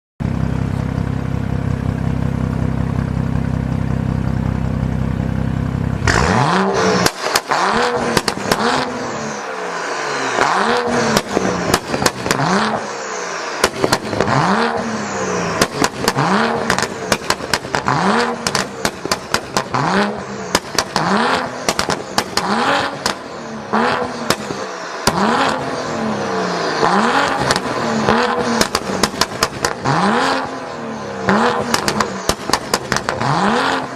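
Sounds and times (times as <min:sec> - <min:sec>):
car engine revving: 0:00.2 - 0:33.9
exhaust pops and crackles: 0:07.0 - 0:08.9, 0:11.1 - 0:12.7, 0:13.6 - 0:14.4, 0:15.6 - 0:23.3, 0:24.0 - 0:25.6, 0:27.3 - 0:30.4, 0:31.3 - 0:33.5.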